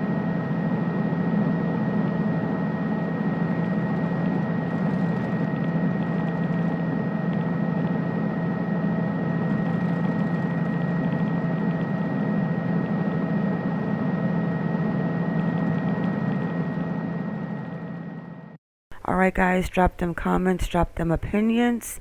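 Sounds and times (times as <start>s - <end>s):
helicopter in flight: 0.0s - 18.6s.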